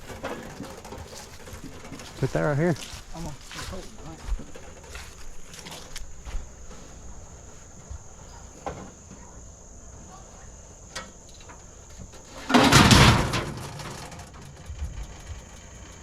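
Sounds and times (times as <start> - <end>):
scrap metal clattering: 12.2 - 15.3.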